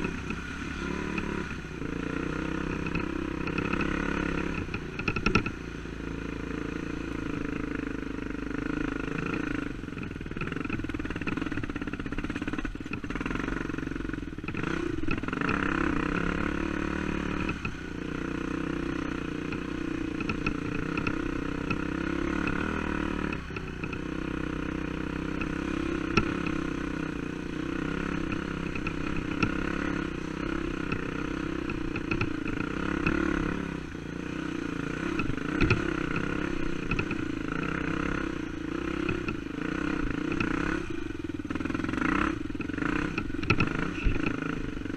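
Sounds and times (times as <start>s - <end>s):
dirt bike engine revving: 0.0s - 5.6s, 6.2s - 44.9s
sharp clicks and clatter: 42.6s - 44.6s.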